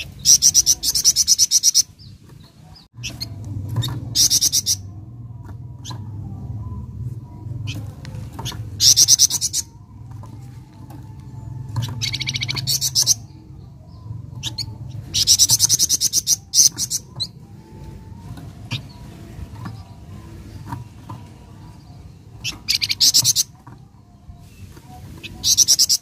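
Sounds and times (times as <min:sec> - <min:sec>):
bird singing high rapid trills: 0:00.0 - 0:05.0, 0:08.4 - 0:10.0, 0:11.6 - 0:26.0.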